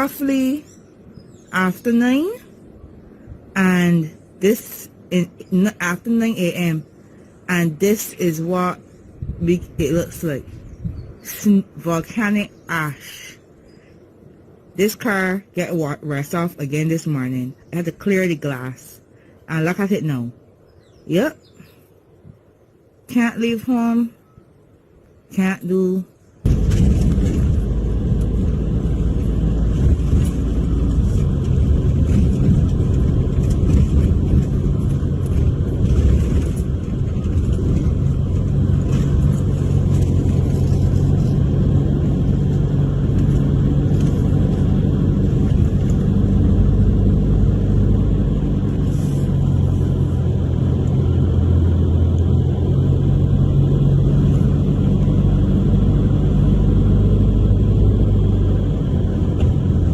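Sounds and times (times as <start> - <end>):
car engine running: 26.5 - 59.9.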